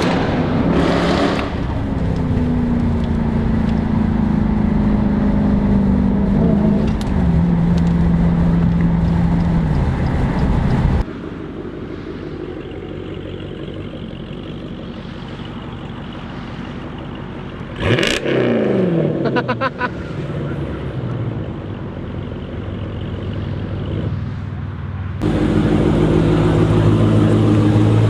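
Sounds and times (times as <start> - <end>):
engine revving: 0.0 - 2.2, 12.2 - 21.2, 25.2 - 28.0
loud car engine running: 0.0 - 28.0
quiet engine hum: 1.4 - 18.0.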